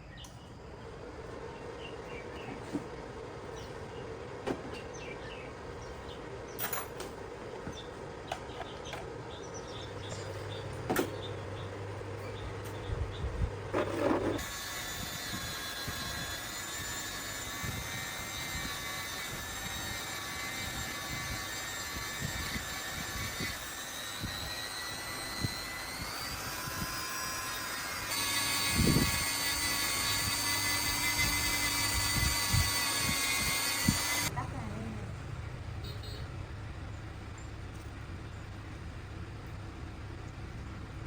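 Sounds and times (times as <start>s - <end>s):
power tool motor whining: 13.7s - 34.3s.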